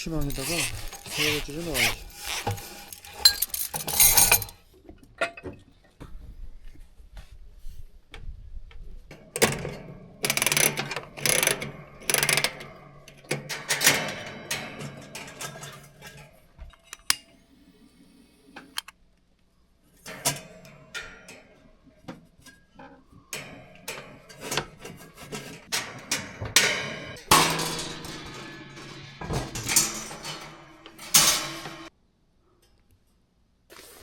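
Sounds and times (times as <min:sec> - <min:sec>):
cookware and utensils clinking: 0:00.0 - 0:04.6.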